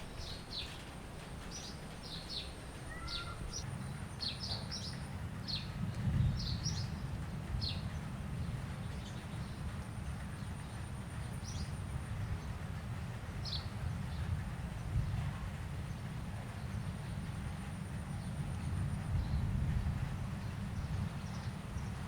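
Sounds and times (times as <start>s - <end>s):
small birds chirping: 0.0s - 3.6s
steady low rumble: 0.0s - 11.1s, 17.1s - 22.0s.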